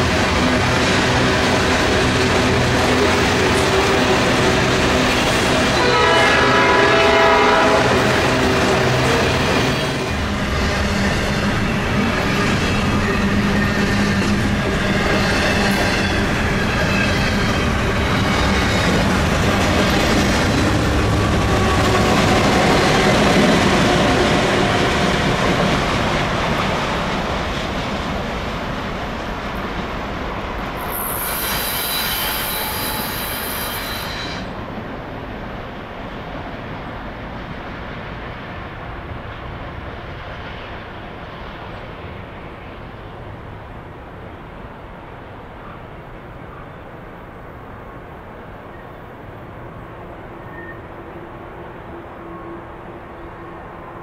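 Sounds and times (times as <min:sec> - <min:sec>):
diesel locomotive engine drone: 0:00.0 - 0:54.0
wheels squealing on curve: 0:30.8 - 0:34.5.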